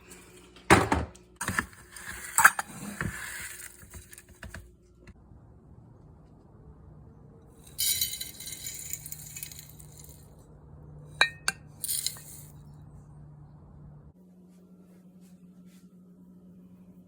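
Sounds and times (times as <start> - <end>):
small hard objects rattling: 7.7 - 10.3, 11.8 - 12.5.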